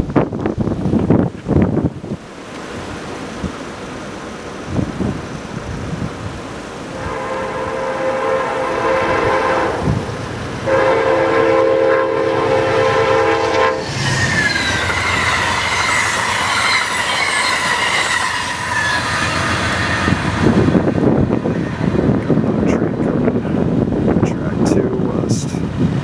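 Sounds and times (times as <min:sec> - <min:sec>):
train horn blasts: 0:06.9 - 0:14.0
train wheels squealing: 0:13.8 - 0:20.4.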